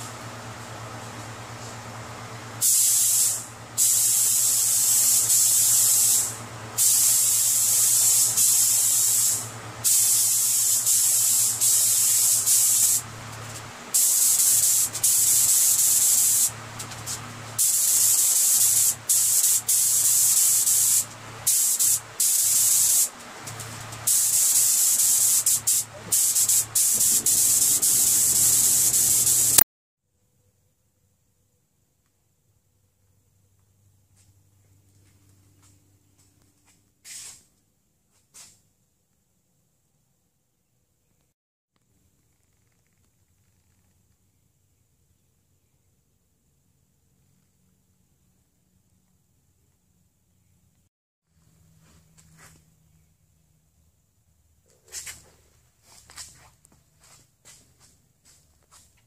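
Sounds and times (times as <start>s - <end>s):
paint spray gun hissing: 2.6s - 29.6s
steady low hum: 3.3s - 29.6s.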